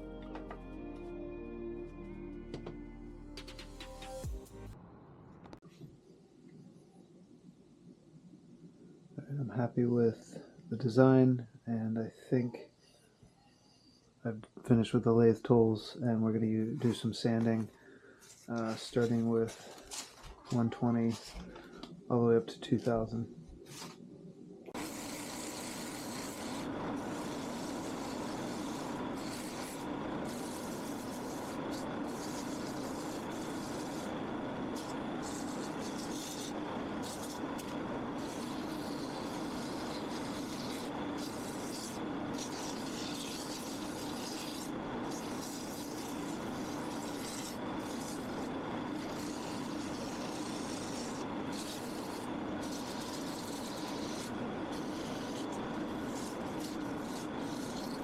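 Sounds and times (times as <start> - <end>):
lathe running: 24.8 - 58.0
sandpaper rubbing on wood: 24.8 - 58.0.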